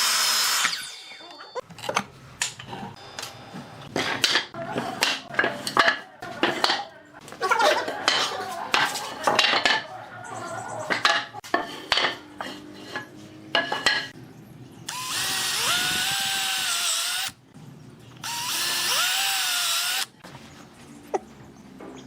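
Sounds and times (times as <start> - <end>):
power drill whirring: 0.0 - 0.9, 14.9 - 17.4, 18.2 - 20.1.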